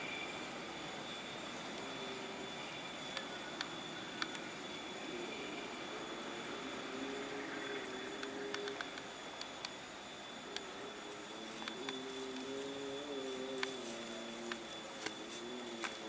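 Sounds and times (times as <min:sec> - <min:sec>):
distant train engine drone: 0:00.0 - 0:16.0
steady hiss: 0:00.0 - 0:16.0
faint clicks: 0:03.1 - 0:04.5, 0:07.6 - 0:09.8, 0:11.5 - 0:12.6, 0:13.5 - 0:16.0.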